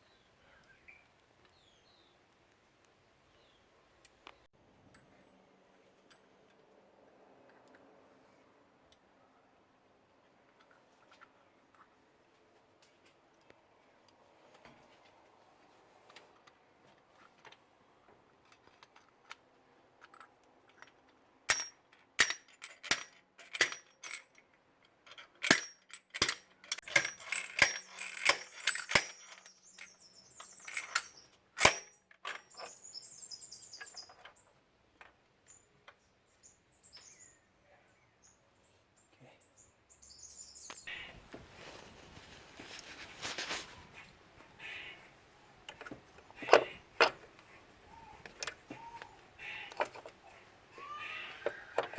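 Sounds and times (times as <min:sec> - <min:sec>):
metal tools clicking and clinking: 0:20.0 - 0:32.8, 0:49.7 - 0:50.2, 0:51.4 - 0:51.9
rustling: 0:40.9 - 0:44.5.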